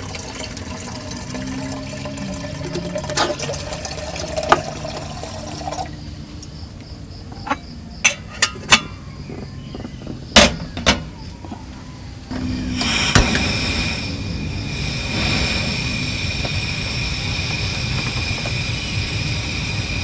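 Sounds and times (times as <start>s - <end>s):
water pouring: 0.0s - 6.0s.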